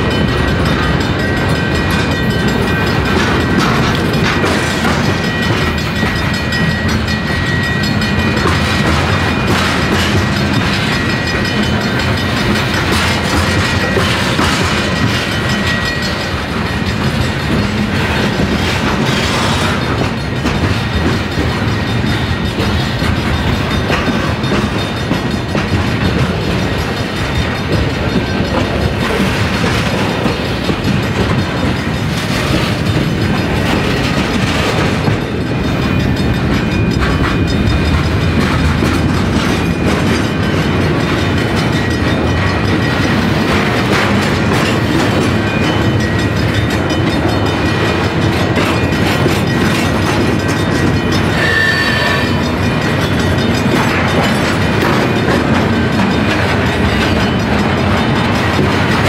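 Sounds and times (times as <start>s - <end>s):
train wheels clacking over rail joints: 0.0s - 59.0s
high wheel squeal: 51.2s - 52.6s.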